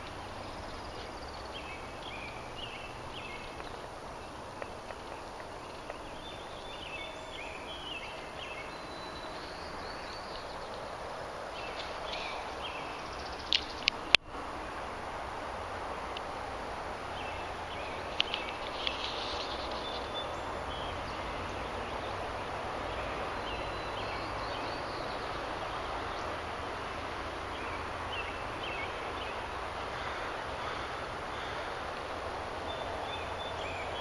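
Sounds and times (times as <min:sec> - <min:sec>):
steady rushing noise: 0:00.0 - 0:34.0
sharp clicks: 0:18.1 - 0:19.2.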